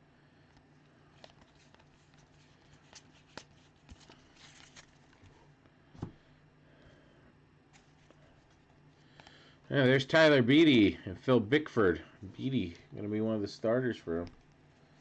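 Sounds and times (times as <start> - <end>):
trading cards rustling and clicking: 1.0 - 5.4.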